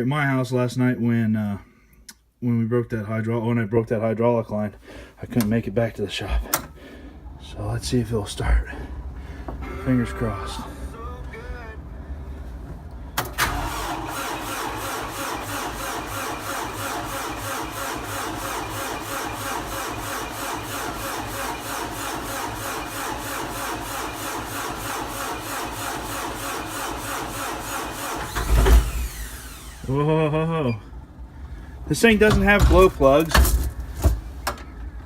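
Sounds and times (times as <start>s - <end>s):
diesel engine cranking: 8.7s - 35.0s.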